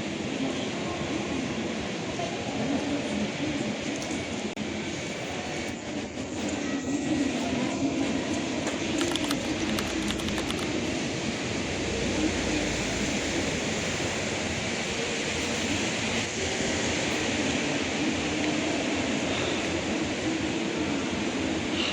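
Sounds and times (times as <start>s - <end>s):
train rumbling: 0.0s - 21.9s.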